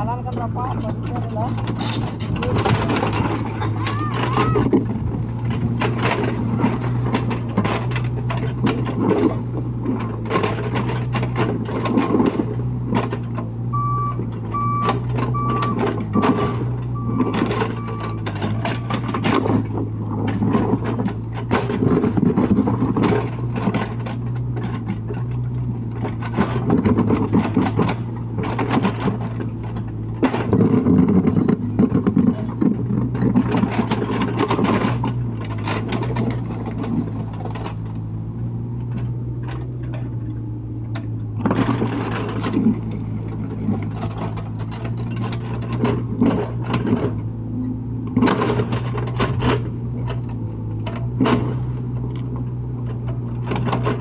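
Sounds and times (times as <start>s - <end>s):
excavator diesel engine running: 0.0s - 54.0s
scraping and clattering: 38.8s - 47.3s.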